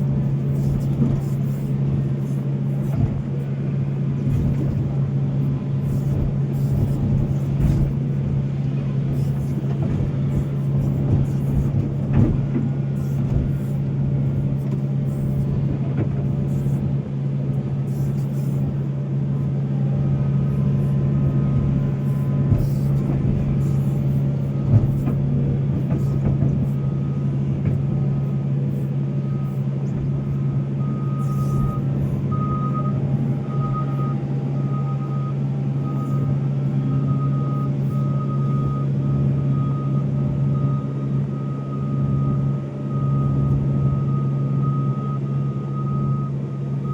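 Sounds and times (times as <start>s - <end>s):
engine knock: 0.0s - 16.8s, 21.6s - 26.8s
excavator diesel engine running: 0.0s - 46.9s
back-up alarm beeping: 30.8s - 46.9s.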